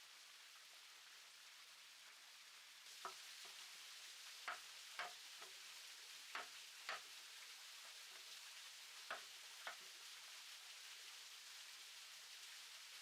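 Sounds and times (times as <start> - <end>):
faint steady hiss: 0.0 - 13.0
sharp taps: 6.4 - 7.0.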